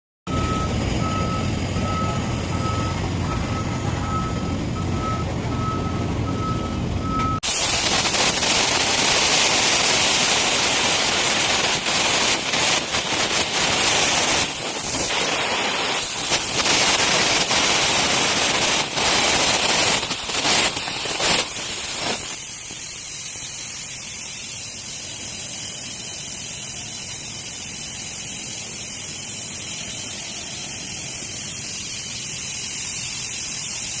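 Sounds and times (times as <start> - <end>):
electric arc welding crackle: 7.4 - 34.0
steady hiss: 7.4 - 34.0.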